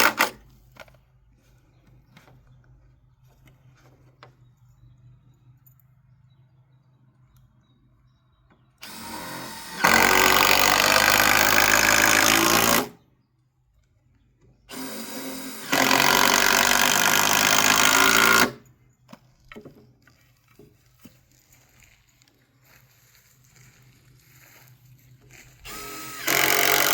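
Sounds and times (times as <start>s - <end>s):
power tool running: 0.0s - 0.4s, 8.8s - 13.0s, 14.7s - 18.6s, 25.6s - 26.9s.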